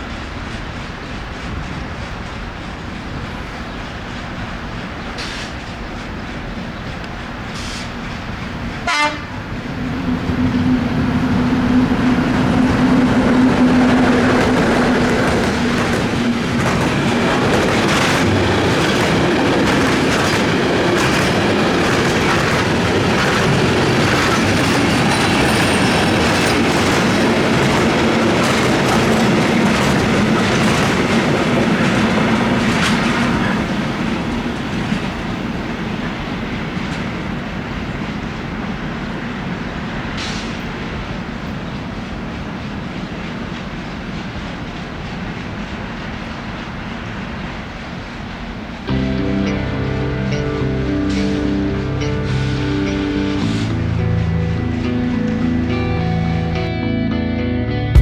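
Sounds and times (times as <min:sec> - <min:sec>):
wheels clacking over rail joints: 0:00.0 - 0:35.4
freight train wagons rolling: 0:00.0 - 0:56.6.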